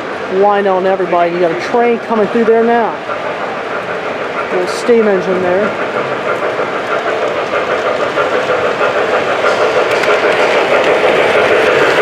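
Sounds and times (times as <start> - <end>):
model train rolling whir: 0.0 - 12.0.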